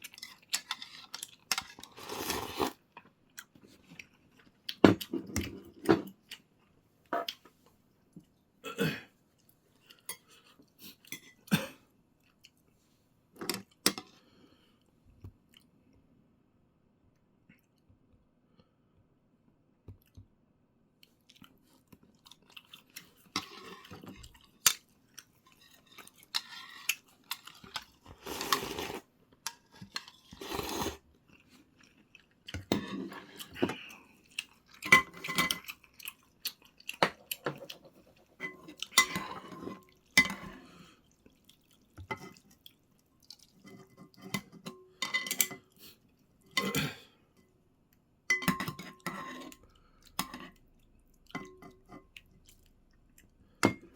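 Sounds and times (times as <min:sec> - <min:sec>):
chewing: 0:21.0 - 0:44.2, 0:49.5 - 0:53.6.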